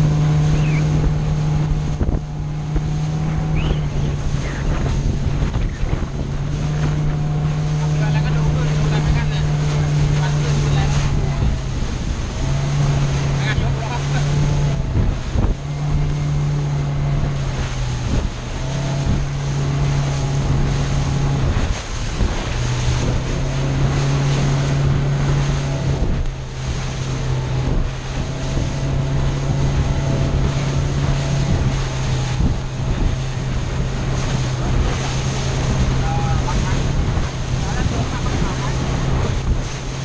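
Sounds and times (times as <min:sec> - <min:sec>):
motorboat engine humming: 0:00.0 - 0:40.0
water rushing around boat: 0:00.0 - 0:40.0
wind buffeting microphone: 0:00.0 - 0:40.0.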